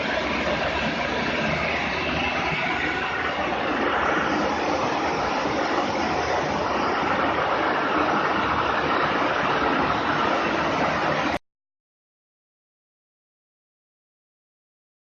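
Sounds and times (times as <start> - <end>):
model jet turbine whooshing: 0.0 - 11.4.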